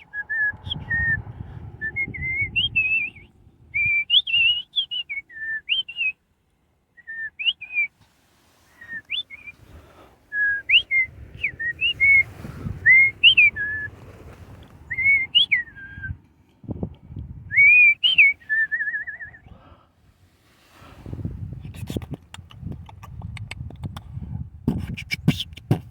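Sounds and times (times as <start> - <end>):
low rumble: 0.0 - 4.6
whistled notes sliding in pitch: 0.0 - 6.1, 8.7 - 9.6, 10.3 - 14.0, 14.9 - 16.2.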